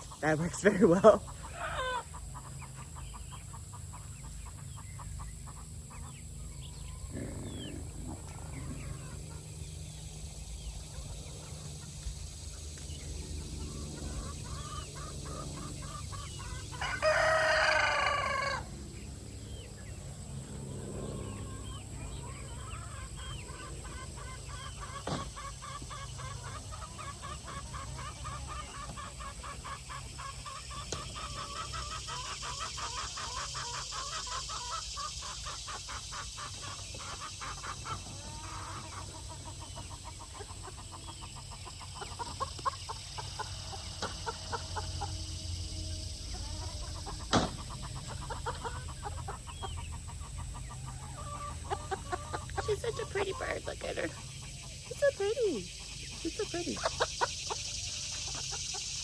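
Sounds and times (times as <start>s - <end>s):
chickens clucking: 0.0s - 59.0s
rooster crowing: 16.7s - 18.8s
hen calls: 46.4s - 57.6s.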